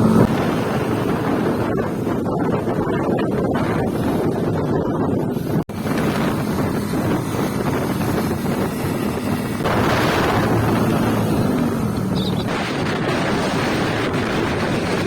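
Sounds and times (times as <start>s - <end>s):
wind buffeting microphone: 0.0s - 15.0s
steady low rumble: 5.6s - 14.4s.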